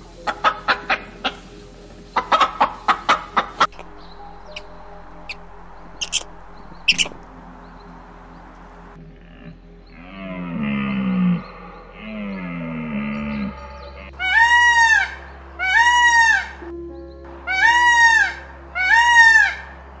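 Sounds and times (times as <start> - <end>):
peacock calling: 0.0 - 20.0
animal lower falling calls: 2.3 - 7.3, 17.5 - 19.7.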